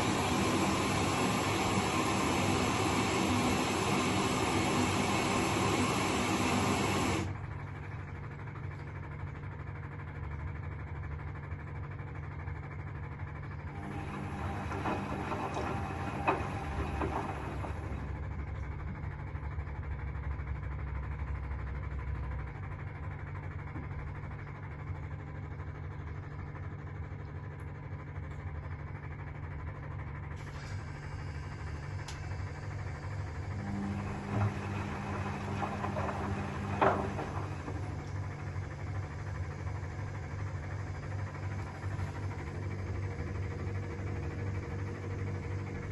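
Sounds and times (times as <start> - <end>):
washing machine humming: 0.0 - 45.9
washing machine knock: 13.9 - 18.0, 33.9 - 38.0.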